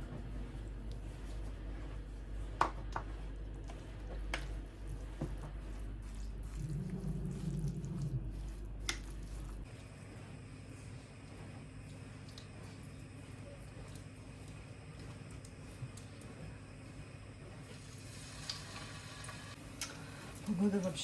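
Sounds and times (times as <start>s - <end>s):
steady low hum: 0.0s - 18.0s
spoon stirring wet batter: 0.2s - 16.2s.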